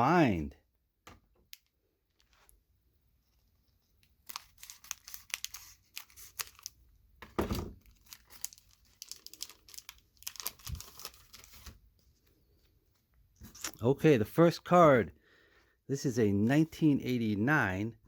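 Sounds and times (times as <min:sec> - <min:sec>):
plastic wrapper tearing and crinkling: 0:04.0 - 0:06.8, 0:07.7 - 0:11.8.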